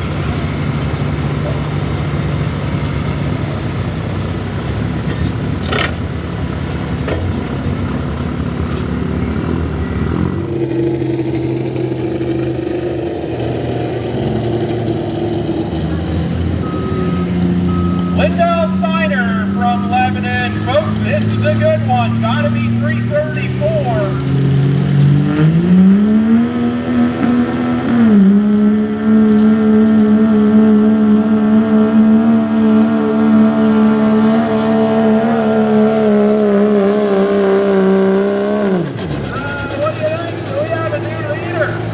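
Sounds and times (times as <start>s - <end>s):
diesel truck engine under load: 0.0s - 41.9s.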